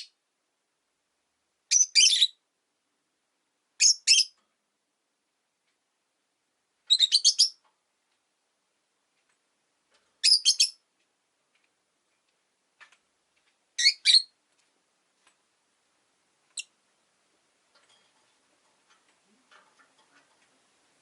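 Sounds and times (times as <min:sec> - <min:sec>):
lovebirds chirping shrilly: 0:06.9 - 0:07.6, 0:10.2 - 0:10.8, 0:13.8 - 0:14.3.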